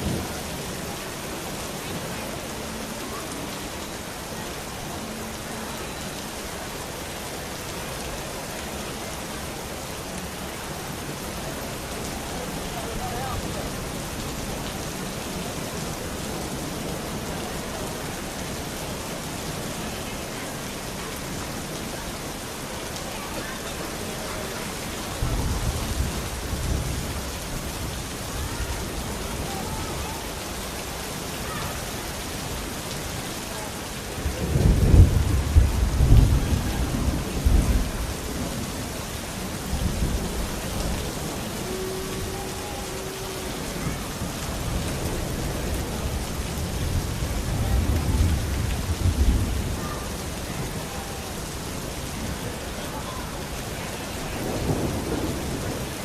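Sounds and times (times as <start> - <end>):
rain hissing: 0.0 - 56.0
rolling thunder: 25.1 - 29.6, 34.2 - 39.0, 43.7 - 50.8, 54.3 - 56.0.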